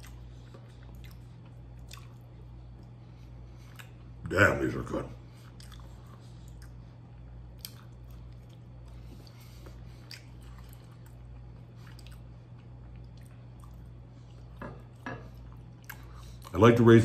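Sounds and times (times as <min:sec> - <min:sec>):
man chewing: 0:00.0 - 0:04.2, 0:05.2 - 0:16.5
steady low hum: 0:00.0 - 0:17.0.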